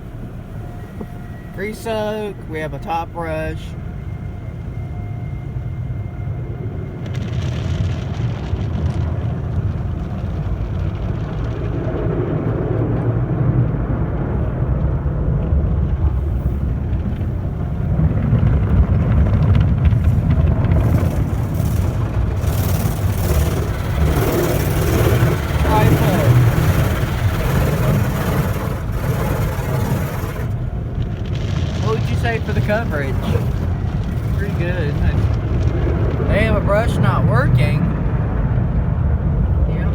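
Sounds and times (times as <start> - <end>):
car wash machinery rumble: 0.0 - 39.9
water spray: 20.8 - 30.6, 31.8 - 35.2.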